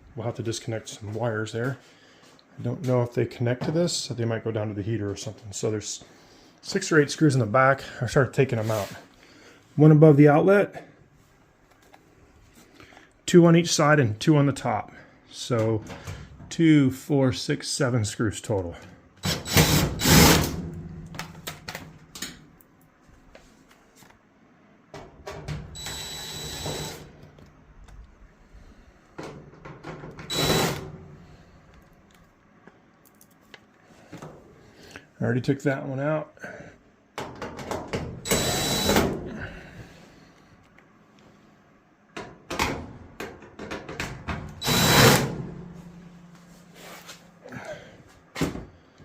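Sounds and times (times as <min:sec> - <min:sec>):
faint hum: 0:00.0 - 0:37.2, 0:37.9 - 0:49.0
power screwdriver whirring: 0:25.8 - 0:27.1, 0:30.3 - 0:30.8, 0:38.3 - 0:39.0, 0:44.6 - 0:45.3.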